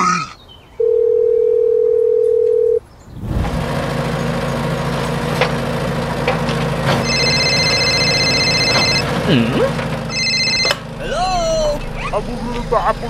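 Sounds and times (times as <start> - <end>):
high electronic ringing tone: 0.8 - 2.8, 7.0 - 9.1, 10.1 - 10.8
phone dial tone: 0.8 - 2.8, 7.0 - 9.1, 10.1 - 10.8
excavator engine idling: 2.6 - 13.0.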